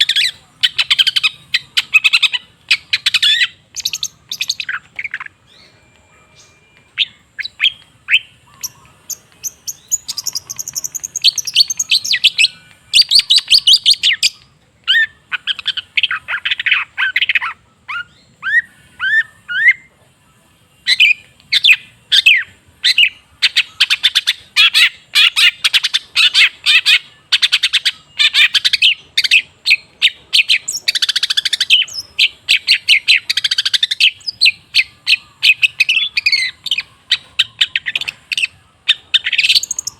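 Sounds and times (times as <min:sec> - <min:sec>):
bird chattering and trilling: 0:00.0 - 0:19.9, 0:20.8 - 0:39.9.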